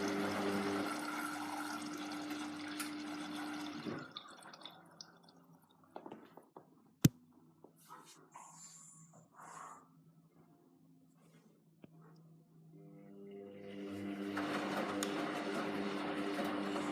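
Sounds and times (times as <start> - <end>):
drain pump humming: 0.0 - 5.0, 13.1 - 16.9.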